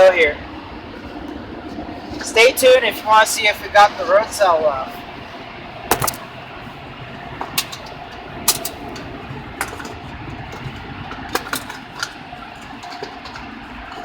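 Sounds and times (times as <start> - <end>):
car wash machinery hum: 0.0 - 14.0.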